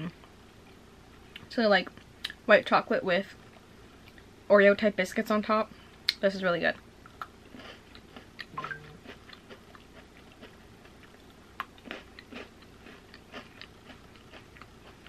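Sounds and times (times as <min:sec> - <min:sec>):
biscuit stick crunching and chewing: 0:07.1 - 0:15.0.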